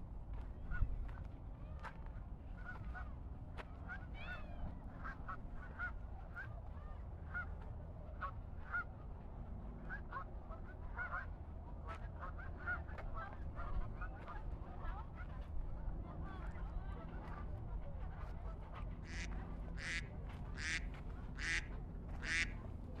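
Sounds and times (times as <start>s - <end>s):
geese honking: 19.0s - 22.6s.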